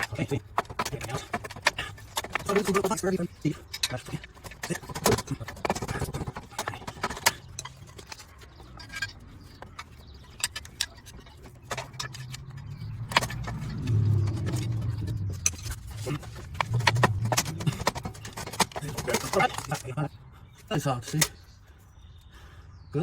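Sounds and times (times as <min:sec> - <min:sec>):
low hum: 0:08.7 - 0:18.7.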